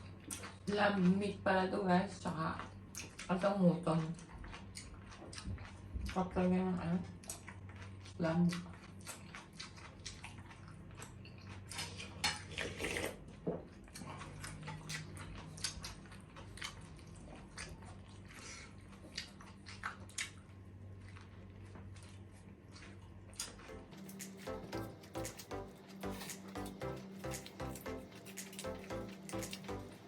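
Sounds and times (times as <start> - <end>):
chewing and biting food: 0.0 - 1.3, 2.2 - 30.0
steady low hum: 22.3 - 30.0.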